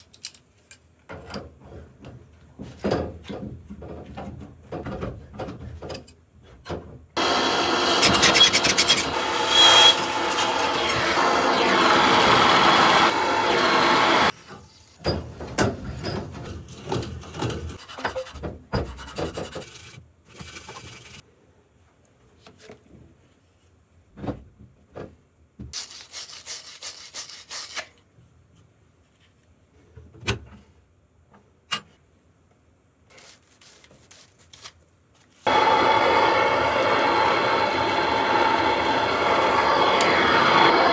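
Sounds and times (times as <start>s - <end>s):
clicks and knocks of handled parts: 0.0s - 1.5s
hiss: 7.2s - 14.3s, 35.5s - 40.9s
rasping scrubbing of pipe: 7.2s - 14.3s.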